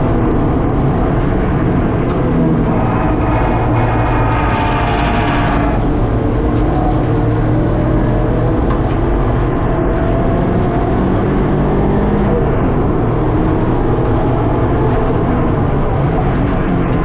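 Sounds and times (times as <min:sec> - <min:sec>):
car engine running hard: 0:00.0 - 0:17.0
road and tyre noise: 0:00.0 - 0:17.0.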